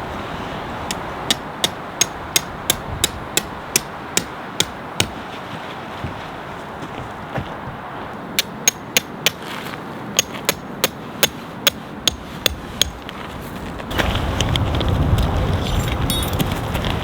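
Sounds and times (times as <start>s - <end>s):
sharp ringing metallic knocks: 0.9s - 5.2s, 8.4s - 9.4s, 10.2s - 13.0s, 15.8s - 16.5s.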